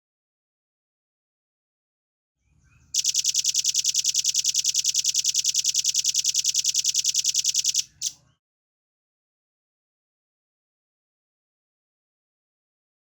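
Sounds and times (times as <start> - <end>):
bird singing fast trill: 3.0 - 8.1.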